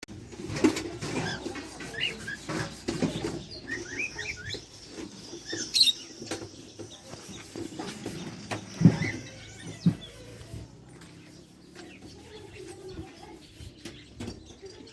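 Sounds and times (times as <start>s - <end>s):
knocks and rustles: 0.1s - 3.6s, 4.6s - 14.8s
small parrots chirping: 3.2s - 10.6s.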